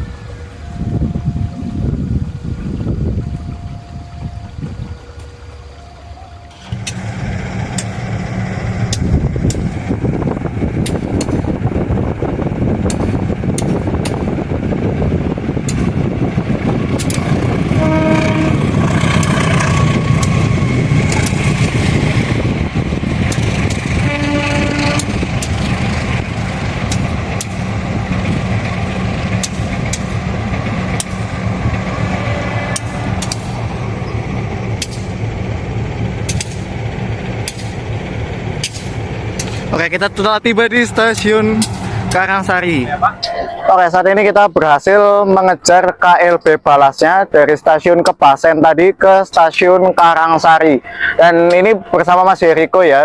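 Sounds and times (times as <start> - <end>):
diesel locomotive rumbling: 0.0 - 53.0
locomotive horn blasts: 17.6 - 20.1, 23.8 - 25.4.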